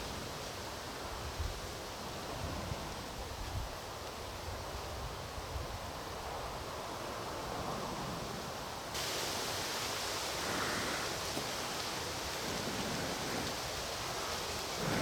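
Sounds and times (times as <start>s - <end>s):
rain hissing: 8.9s - 15.0s.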